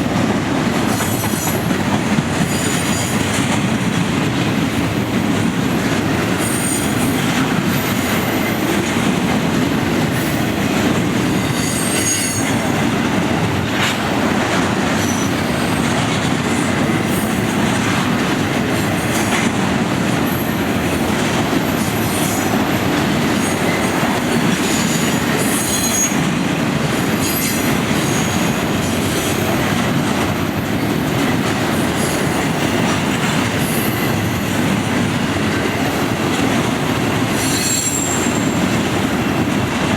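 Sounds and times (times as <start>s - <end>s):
steel wheels rumbling on rail: 0.0s - 39.9s
high-pitched wheel squeals: 37.4s - 38.6s.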